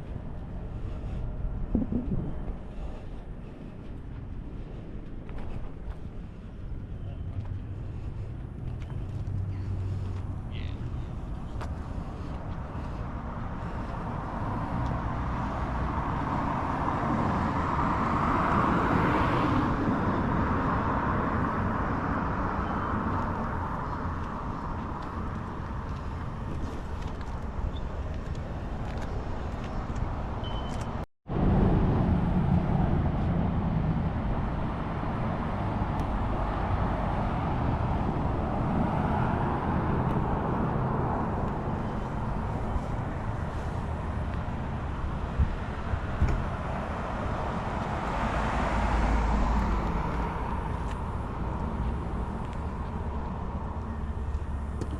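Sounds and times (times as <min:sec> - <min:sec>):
steady low rumble: 0:00.0 - 0:15.0
traffic noise: 0:00.0 - 0:54.9.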